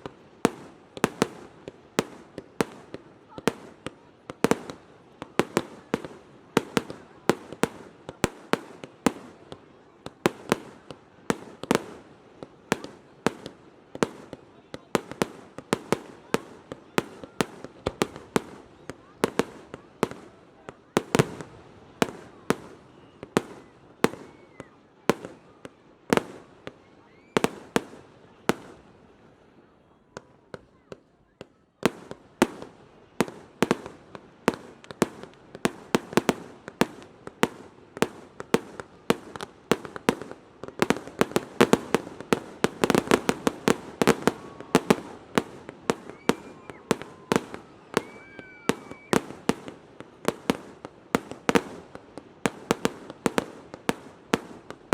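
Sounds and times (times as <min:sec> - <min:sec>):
fireworks bangs: 0:12.7 - 0:25.5, 0:31.9 - 0:54.9.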